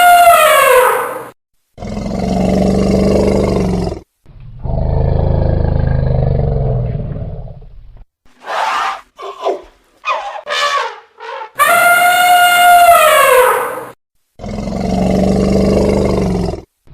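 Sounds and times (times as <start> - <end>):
elephant trumpeting: 0.0 - 1.3, 8.4 - 13.9
elephant low roars: 4.6 - 7.6.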